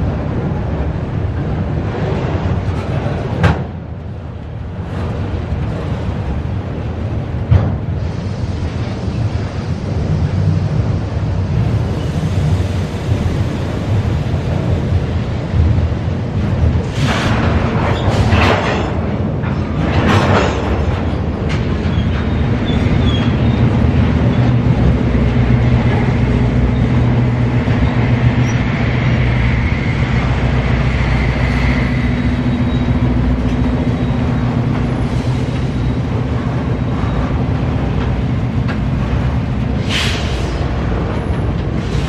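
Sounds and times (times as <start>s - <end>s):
freight train passing: 0.0s - 42.0s
wheel and rail noise: 0.0s - 42.0s.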